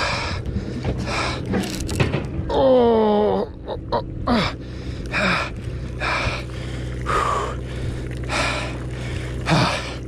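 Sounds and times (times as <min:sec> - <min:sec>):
man breathing hard: 0:00.0 - 0:01.7
low engine hum: 0:00.0 - 0:10.0.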